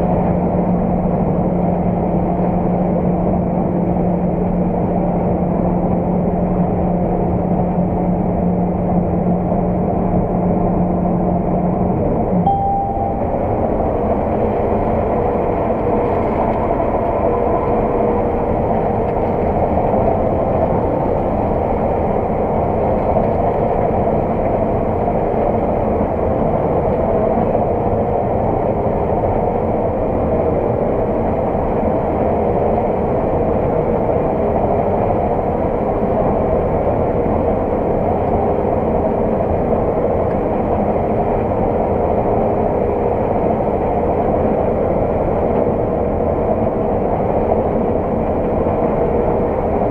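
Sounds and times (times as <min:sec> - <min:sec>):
diesel engine drone from cab: 0:00.0 - 0:49.9.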